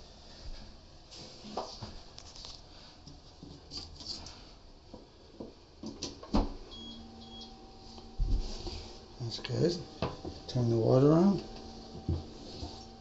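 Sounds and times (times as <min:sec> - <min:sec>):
faint electronic tone: 0:06.7 - 0:13.0.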